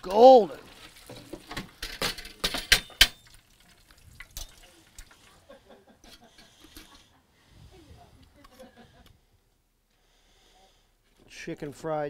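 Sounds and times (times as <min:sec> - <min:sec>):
metal utensils clinking on pan: 0:01.1 - 0:03.3.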